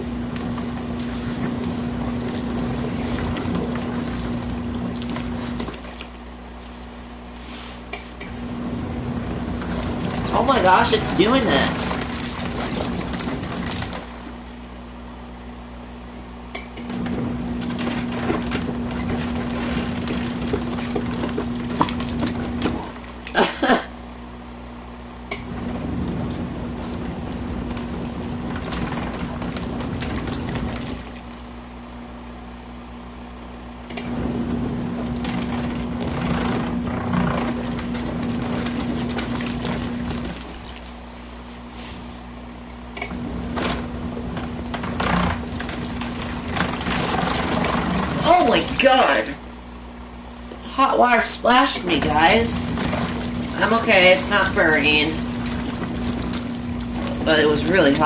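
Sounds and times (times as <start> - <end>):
washing machine motor humming: 0.0 - 58.0.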